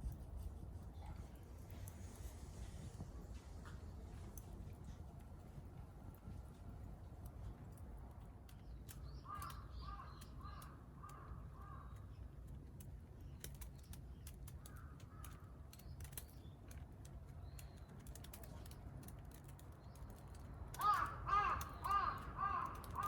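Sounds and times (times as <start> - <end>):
campfire crackling: 0.0 - 10.7, 18.0 - 23.0
crow cawing: 9.3 - 11.9, 20.7 - 23.0.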